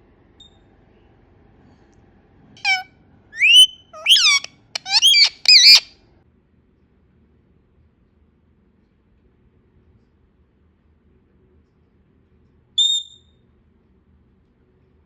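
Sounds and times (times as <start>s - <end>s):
parrot calling: 2.6s - 5.9s.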